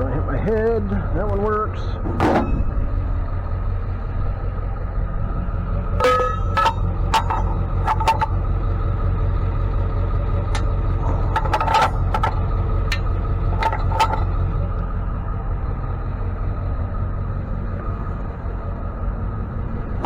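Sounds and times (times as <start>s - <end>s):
vehicle engine droning: 0.0s - 20.0s
sharp clicks and clinks: 6.0s - 8.4s, 10.5s - 14.5s.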